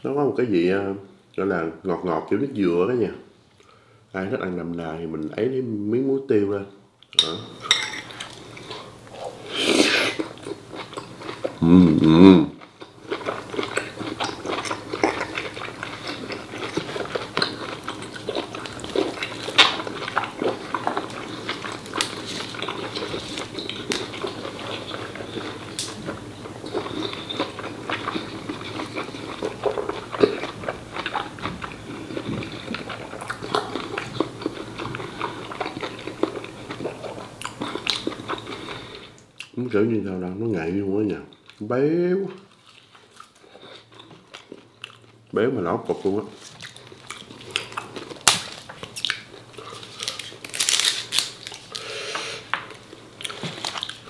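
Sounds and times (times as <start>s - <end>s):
person chewing wetly: 8.1s - 39.5s, 42.3s - 45.2s, 46.4s - 54.0s.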